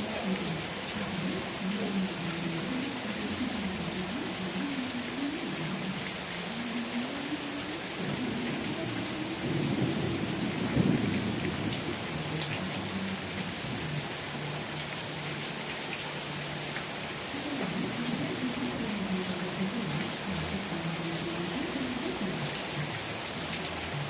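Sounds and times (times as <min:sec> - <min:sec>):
heavy rain hissing: 0:00.0 - 0:24.0
low rumble of thunder: 0:08.0 - 0:14.1.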